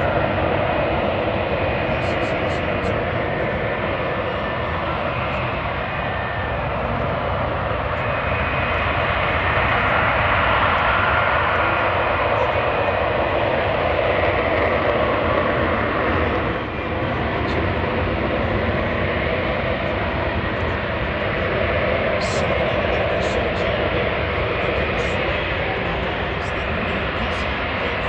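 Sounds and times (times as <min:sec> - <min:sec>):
jet engine running: 0:00.0 - 0:28.0.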